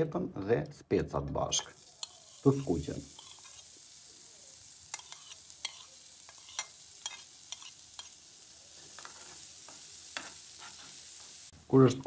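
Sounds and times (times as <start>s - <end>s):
vegetables sizzling in a pan: 1.5s - 12.0s.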